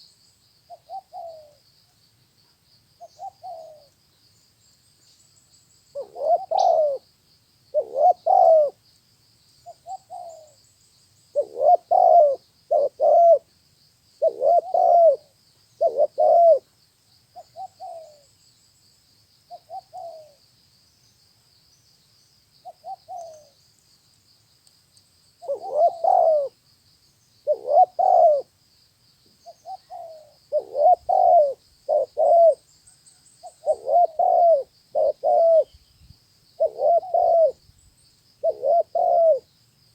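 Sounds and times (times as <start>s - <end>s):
dove cooing: 0.7s - 1.6s, 3.1s - 3.9s, 5.9s - 7.0s, 7.7s - 8.8s, 9.8s - 10.6s, 11.3s - 13.5s, 14.2s - 16.7s, 17.4s - 18.2s, 19.5s - 20.4s, 22.6s - 23.5s, 25.4s - 26.6s, 27.4s - 28.5s, 29.4s - 32.6s, 33.4s - 35.8s, 36.6s - 37.6s, 38.4s - 39.5s.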